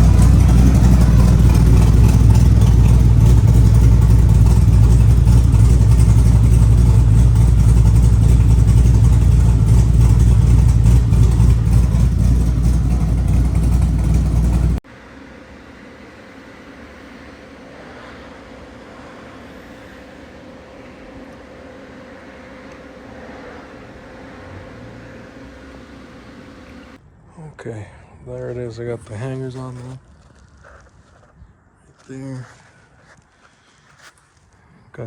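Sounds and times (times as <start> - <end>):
raspy car engine idling: 0.0 - 27.0.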